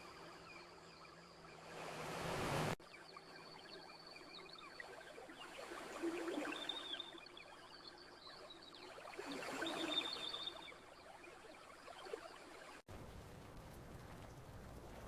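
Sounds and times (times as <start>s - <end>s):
ocean waves washing ashore: 1.4s - 2.8s.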